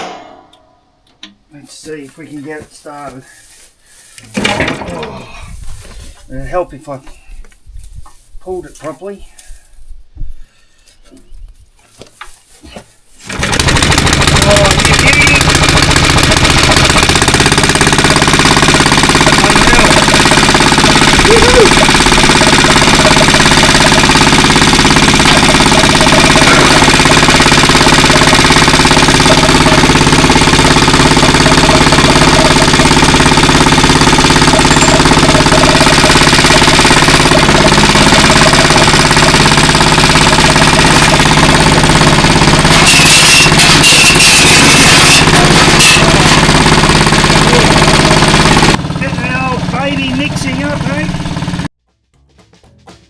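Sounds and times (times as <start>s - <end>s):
small petrol engine running: 13.2s - 51.7s.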